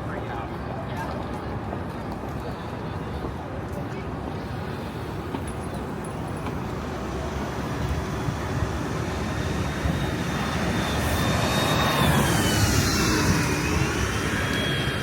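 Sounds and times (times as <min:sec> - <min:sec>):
city street traffic: 0:00.0 - 0:15.0
faint high whine: 0:04.3 - 0:15.0.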